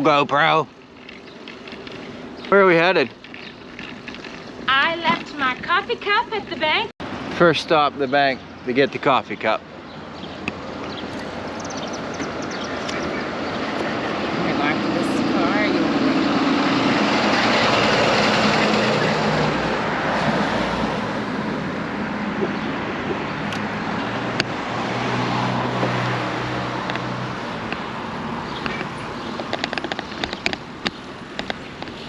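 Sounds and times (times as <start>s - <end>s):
wind and tyre noise: 0.0s - 32.0s.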